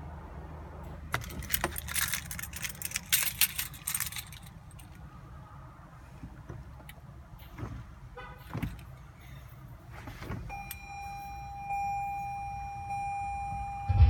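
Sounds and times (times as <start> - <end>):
high electronic tone: 12.2 - 14.0.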